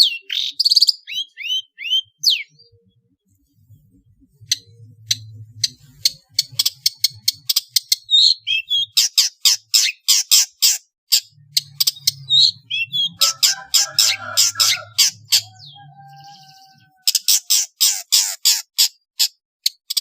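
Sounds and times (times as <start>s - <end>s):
bird harsh rasping chatter: 4.4s - 20.0s.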